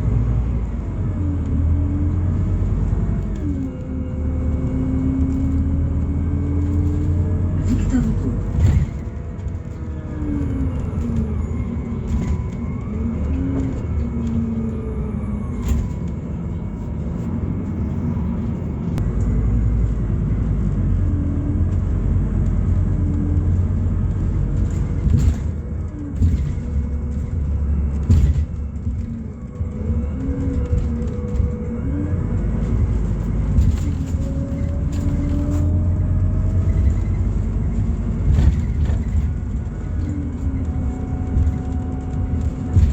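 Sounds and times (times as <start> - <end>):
bus body knocks and rattles: 0.0 - 42.9
bus engine rumble: 0.0 - 42.9
drivetrain whine: 0.0 - 42.9.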